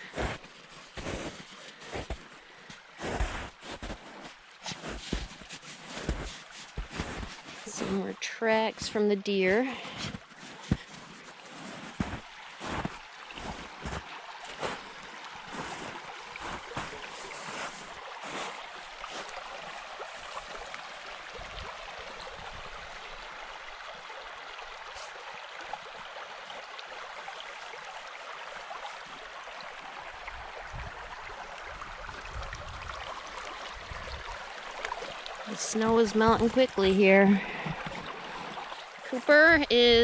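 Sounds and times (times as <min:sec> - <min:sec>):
creek water rushing: 0:00.0 - 0:40.0
wind buffeting microphone: 0:30.4 - 0:31.2.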